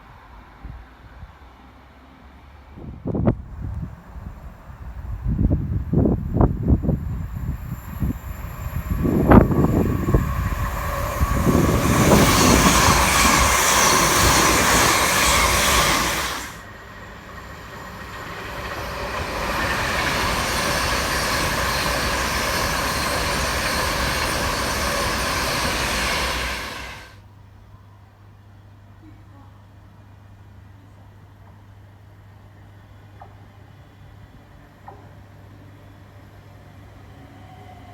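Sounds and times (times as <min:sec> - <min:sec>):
train passing at speed: 0:00.0 - 0:27.2
wind buffeting microphone: 0:02.8 - 0:16.6.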